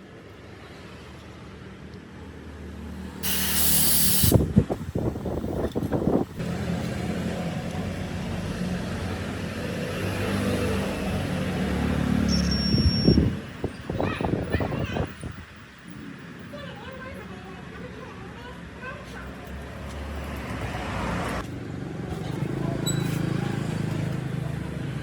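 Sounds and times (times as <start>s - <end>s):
air hissing: 3.2s - 6.2s.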